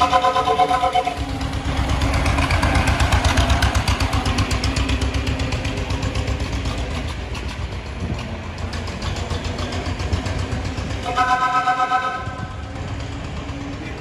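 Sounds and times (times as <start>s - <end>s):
car engine running: 0.9s - 11.1s.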